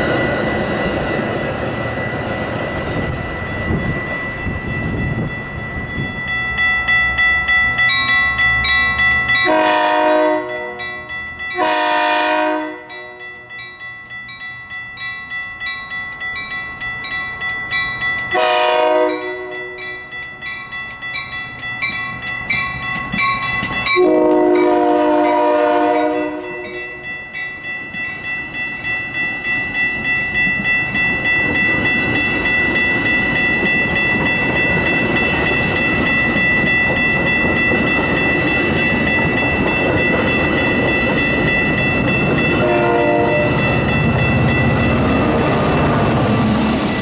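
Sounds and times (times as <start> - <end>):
rapid ringing bell: 0.0 - 9.5, 10.5 - 11.6, 12.9 - 18.4, 19.1 - 24.8, 26.0 - 47.0
passing train rumble: 0.0 - 47.0
train horn: 9.4 - 13.4, 18.4 - 19.9, 24.0 - 27.0, 42.5 - 43.7, 45.1 - 46.0
train wheels clicking over rail joints: 20.1 - 24.7.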